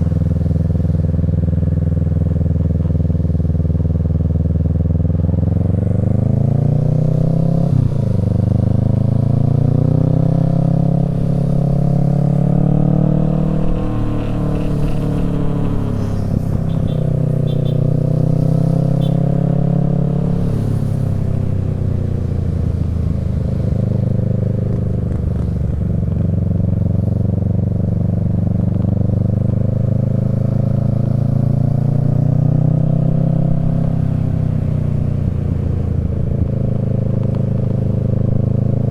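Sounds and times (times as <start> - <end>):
motorcycle engine revving: 0.0 - 38.6.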